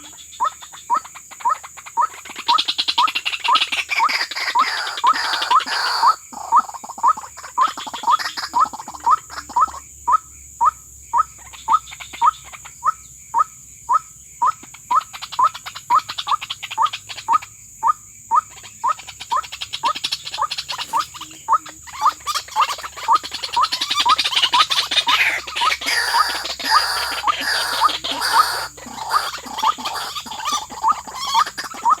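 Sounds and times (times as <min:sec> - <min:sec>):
waterhen calling: 0:00.0 - 0:32.0.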